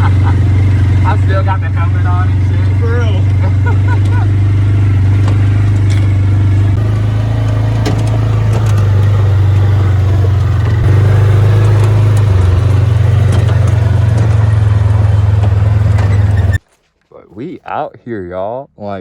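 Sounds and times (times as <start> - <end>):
dirt bike engine running: 0.0 - 16.6.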